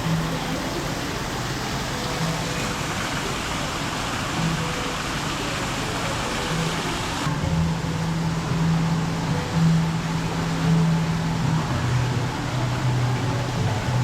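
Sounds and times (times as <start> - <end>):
rushing water hiss: 0.0 - 14.0
faint low hums: 4.3 - 14.0.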